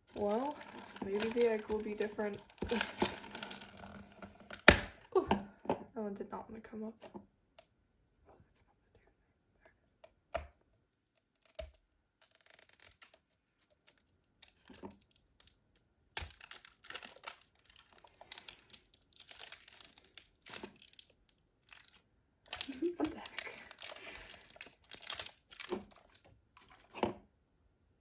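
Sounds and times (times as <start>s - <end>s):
plastic wrapping crinkling and tearing: 0.0s - 4.8s, 11.3s - 26.8s
packaging clicks and taps: 0.1s - 4.8s, 11.2s - 26.8s.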